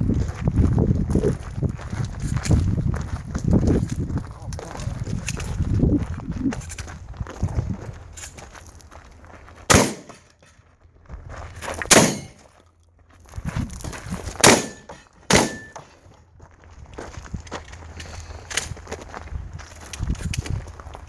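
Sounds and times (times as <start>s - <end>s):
shotgun shots with echo: 9.7s - 10.3s, 11.9s - 12.4s, 14.4s - 15.9s.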